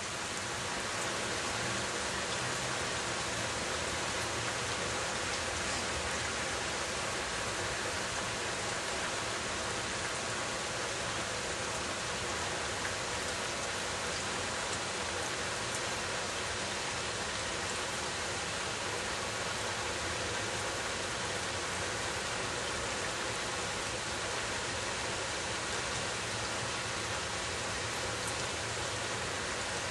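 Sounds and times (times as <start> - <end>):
steady rain hiss: 0.0 - 29.9
faint raindrop ticks: 4.1 - 6.4, 15.6 - 15.9, 28.1 - 29.0.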